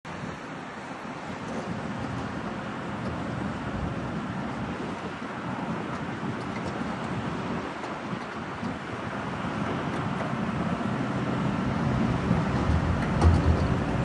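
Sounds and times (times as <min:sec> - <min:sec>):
diesel engine rumbling: 0:01.7 - 0:14.0.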